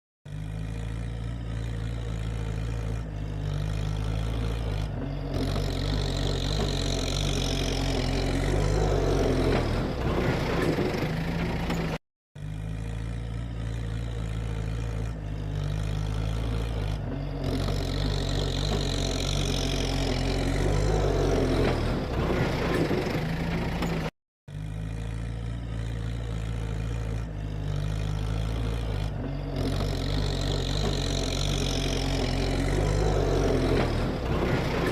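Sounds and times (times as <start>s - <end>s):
tractor diesel engine running: 0.3s - 34.9s.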